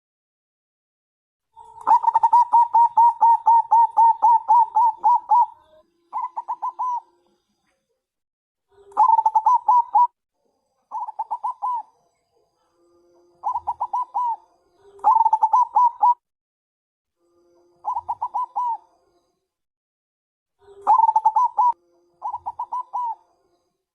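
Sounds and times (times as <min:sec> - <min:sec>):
dove cooing in rapid runs: 0:01.8 - 0:05.6, 0:09.0 - 0:10.1, 0:11.0 - 0:11.8, 0:13.4 - 0:14.4, 0:15.0 - 0:16.2, 0:17.9 - 0:18.7, 0:20.9 - 0:23.1.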